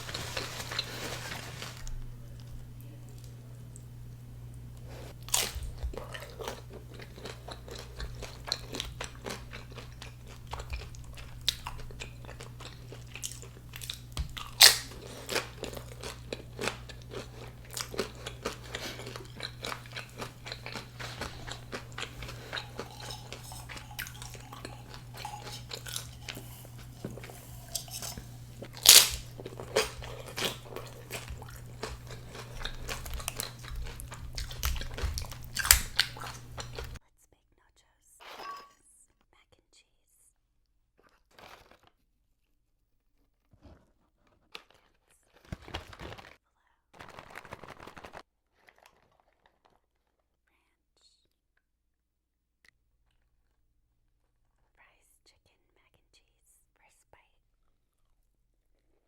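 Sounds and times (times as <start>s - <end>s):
crunchy chewing of chips: 0.0s - 37.0s, 41.0s - 42.0s, 43.5s - 50.2s
steady low hum: 0.0s - 37.0s.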